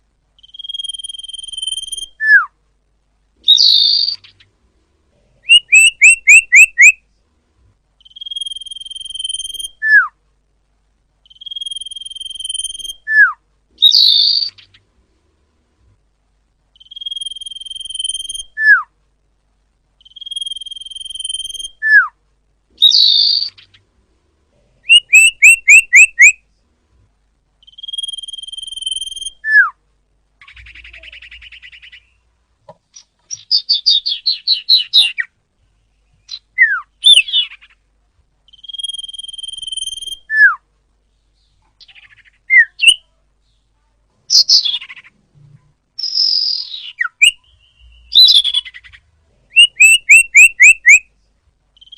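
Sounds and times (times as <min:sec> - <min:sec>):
bird chattering buzzy trills: 0:00.4 - 0:02.2, 0:05.5 - 0:07.0, 0:16.8 - 0:18.6, 0:20.0 - 0:21.8, 0:24.9 - 0:26.4, 0:41.8 - 0:43.0, 0:46.0 - 0:51.0
bird whistle sliding downward: 0:05.5 - 0:07.0, 0:16.9 - 0:18.8, 0:20.2 - 0:22.1, 0:24.9 - 0:26.4, 0:27.8 - 0:29.8, 0:38.6 - 0:40.6, 0:49.6 - 0:51.0.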